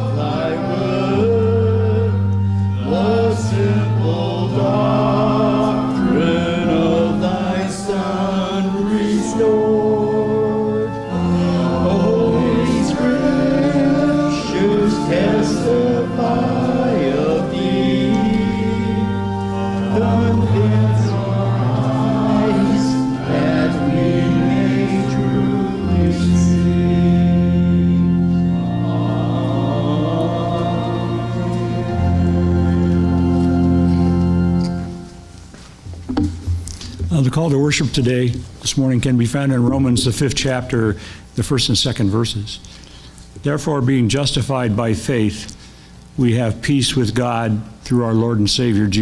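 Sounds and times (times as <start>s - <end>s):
congregation singing a hymn: 0.0s - 36.3s
sustained instrumental accompaniment: 0.0s - 37.7s
organ chords: 0.0s - 49.0s.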